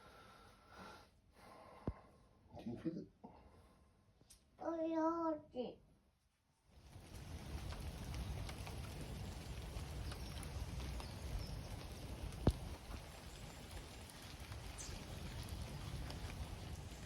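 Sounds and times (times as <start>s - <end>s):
rain hissing: 6.7s - 17.0s
water drips: 6.8s - 17.0s.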